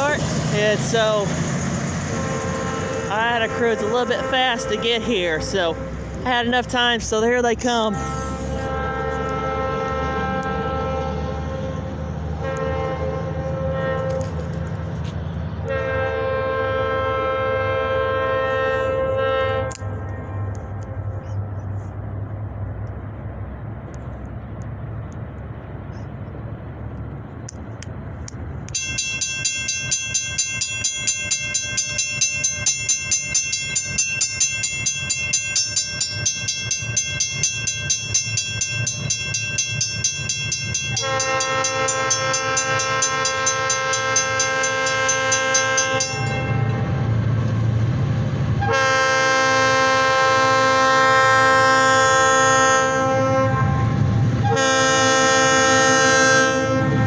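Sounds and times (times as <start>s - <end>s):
diesel locomotive engine rumble: 0.0s - 57.0s
multi-note air horn: 7.9s - 11.6s, 15.7s - 19.8s, 41.0s - 46.9s, 48.6s - 57.0s.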